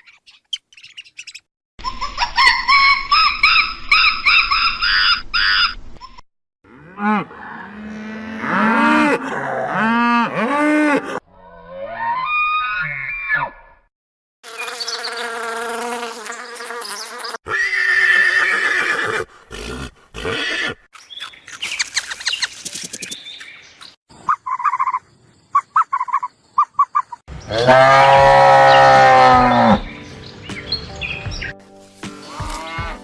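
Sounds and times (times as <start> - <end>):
short chirping calls: 0.0 - 1.5, 21.0 - 27.2
loud drawn-out animal call: 6.7 - 13.8, 17.4 - 20.9, 24.2 - 29.9.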